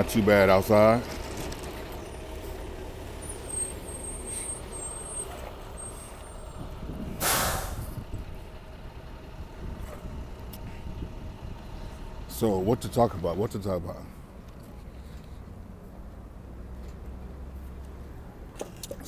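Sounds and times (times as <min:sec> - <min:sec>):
idling heavy traffic: 0:00.0 - 0:19.0
air brakes hissing: 0:02.0 - 0:08.1.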